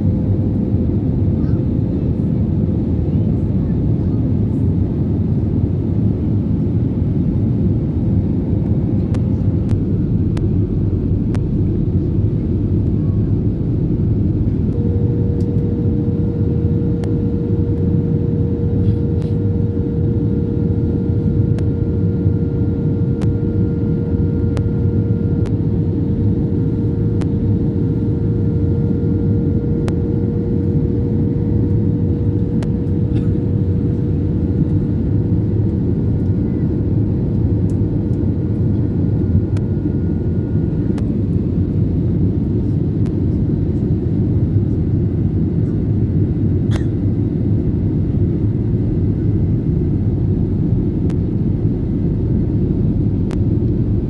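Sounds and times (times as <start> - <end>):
engine drone: 8.6 - 41.8
thin whine: 9.7 - 26.4.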